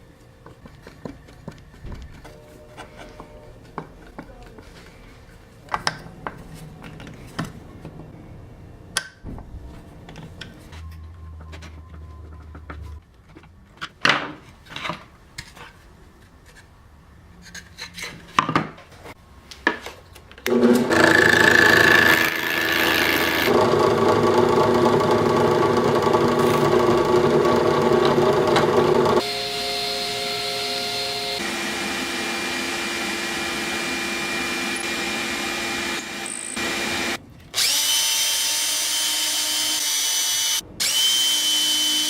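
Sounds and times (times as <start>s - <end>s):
power tool cutting wood: 20.5s - 42.0s.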